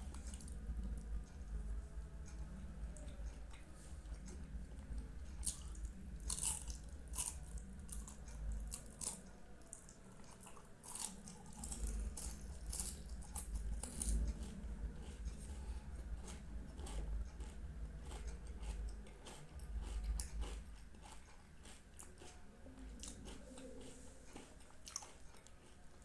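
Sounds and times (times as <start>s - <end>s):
wet chewing and smacking: 3.0s - 26.0s.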